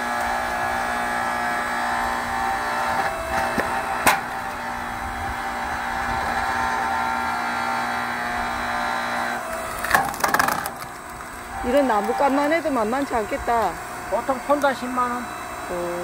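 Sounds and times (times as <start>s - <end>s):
firewood splitting and cracking: 0.0s - 8.6s, 9.2s - 12.7s
log splitter humming: 0.0s - 16.0s.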